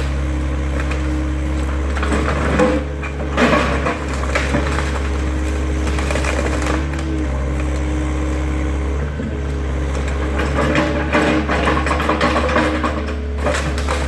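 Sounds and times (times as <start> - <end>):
demolition debris crackling: 0.0 - 7.9
excavator diesel engine running: 0.0 - 14.0.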